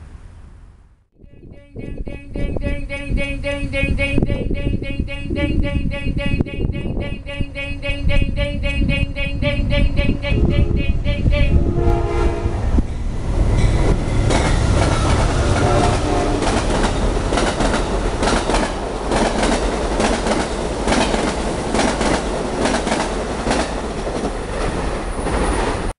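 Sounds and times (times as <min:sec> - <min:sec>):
train cars rumbling: 0:08.2 - 0:25.9
train horn chord: 0:10.3 - 0:12.9, 0:15.0 - 0:16.6.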